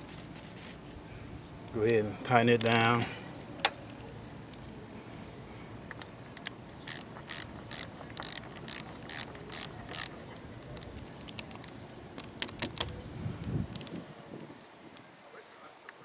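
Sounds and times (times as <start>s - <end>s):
socket ratchet wrench clicking: 6.4s - 13.0s.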